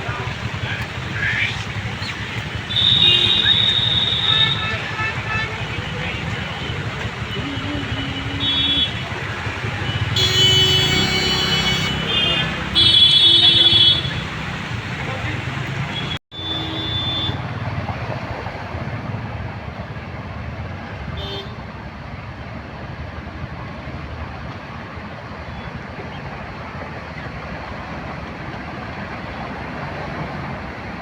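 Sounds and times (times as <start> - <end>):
passing vehicles: 0.0 - 31.0
car horn toot: 2.7 - 9.1, 9.7 - 14.3, 15.9 - 17.5.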